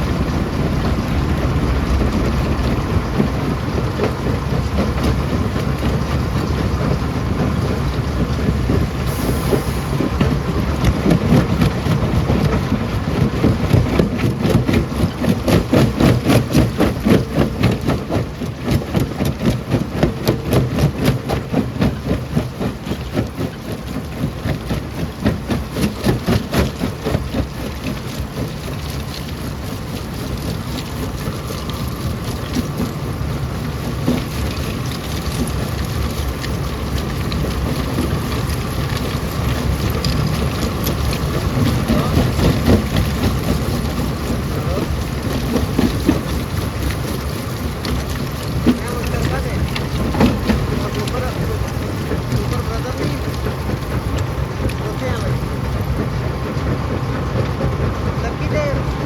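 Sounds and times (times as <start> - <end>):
stone crusher grinding rock: 8.2 - 33.0, 33.7 - 56.2.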